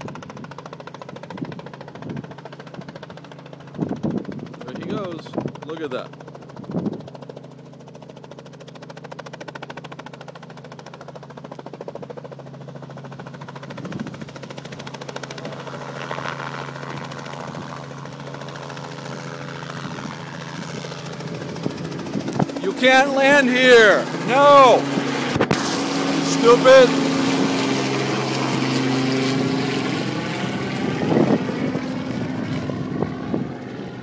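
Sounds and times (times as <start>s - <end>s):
helicopter rotor and engine: 0.0s - 34.0s.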